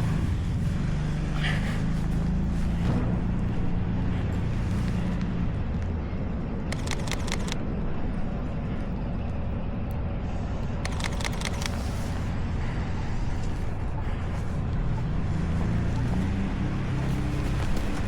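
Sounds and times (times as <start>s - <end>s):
low rumble: 0.0s - 18.0s
camera shutter clicks: 6.7s - 7.6s, 10.8s - 11.9s.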